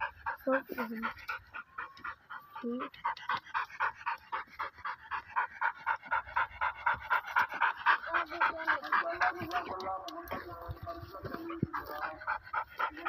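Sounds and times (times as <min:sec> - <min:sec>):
dog panting hard: 0:00.0 - 0:13.0.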